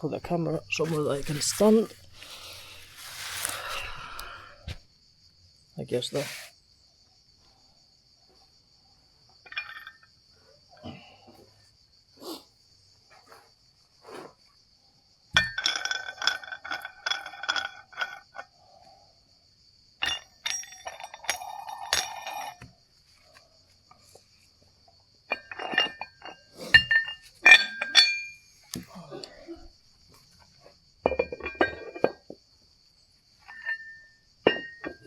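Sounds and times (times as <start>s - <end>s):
metal weight plates clinking: 9.5s - 10.0s, 15.4s - 18.2s, 20.0s - 22.7s, 25.3s - 28.5s, 33.4s - 35.0s.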